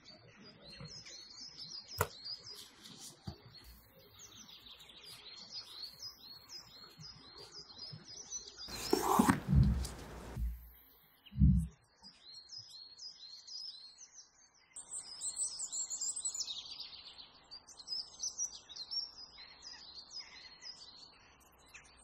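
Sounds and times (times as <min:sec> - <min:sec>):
small birds chirping: 0:00.0 - 0:22.0
low thump: 0:11.4 - 0:11.7.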